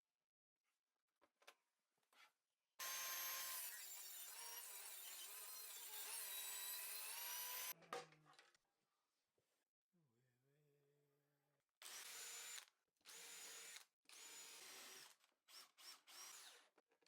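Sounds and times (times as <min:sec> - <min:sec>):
power tool cutting wood: 0:02.8 - 0:07.8, 0:11.8 - 0:16.6.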